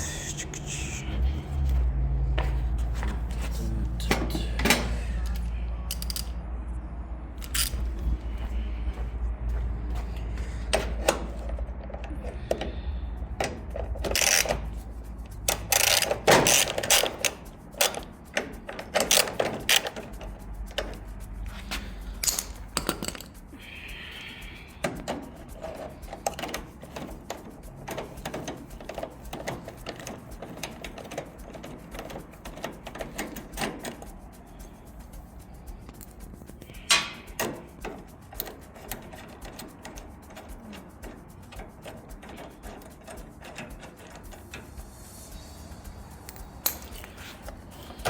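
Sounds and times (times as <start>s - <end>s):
steady low rumble: 0.0s - 19.0s, 19.6s - 48.0s
clicks taps and knocks of hand work: 24.4s - 44.9s.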